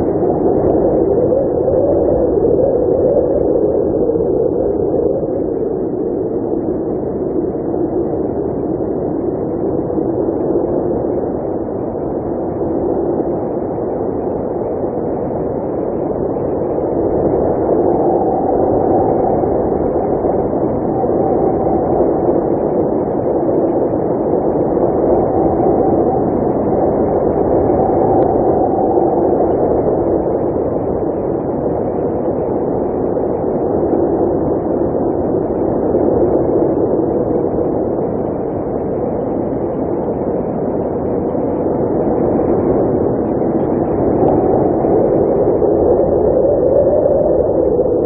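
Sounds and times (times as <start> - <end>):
blizzard wind rushing: 0.0 - 48.0.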